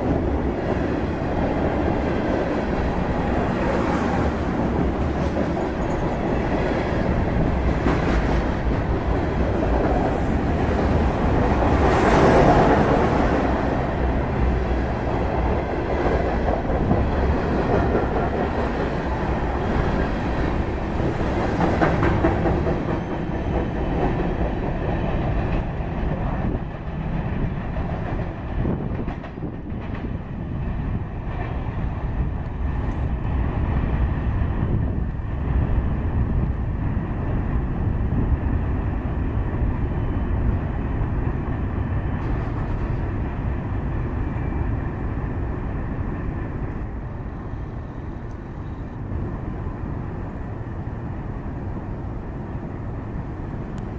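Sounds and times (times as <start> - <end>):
freight train wheels rattling: 0.0 - 31.7.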